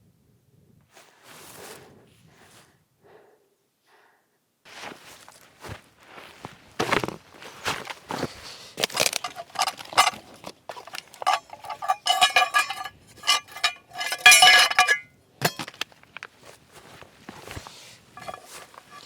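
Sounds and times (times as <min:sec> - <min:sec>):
metal clinking and scraping: 0:08.8 - 0:15.8, 0:17.4 - 0:19.0
metal rattling clatters: 0:08.8 - 0:15.8, 0:18.2 - 0:19.0.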